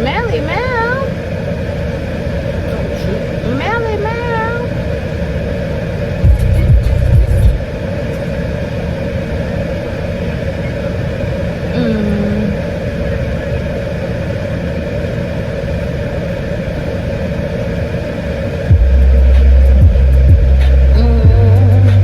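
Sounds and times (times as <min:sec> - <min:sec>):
car engine and road noise: 0:04.8 - 0:11.6, 0:14.8 - 0:22.0
loud low boom: 0:18.7 - 0:22.0.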